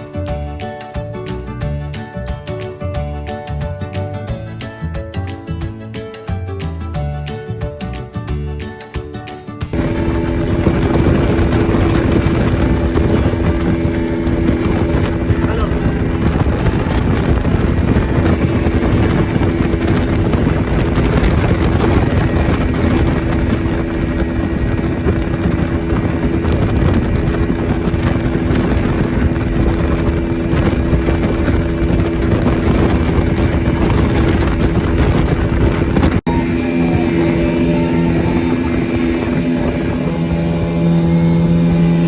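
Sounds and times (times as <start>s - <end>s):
boat engine humming: 9.3s - 42.0s.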